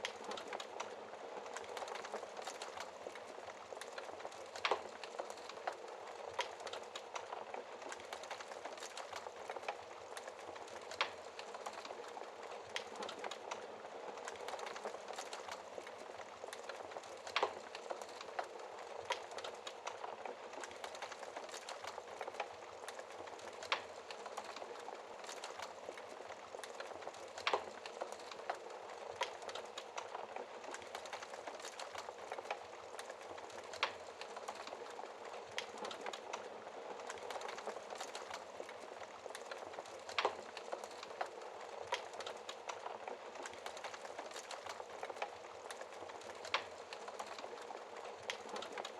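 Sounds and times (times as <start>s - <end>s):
crackling fire hiss: 0.0s - 48.9s.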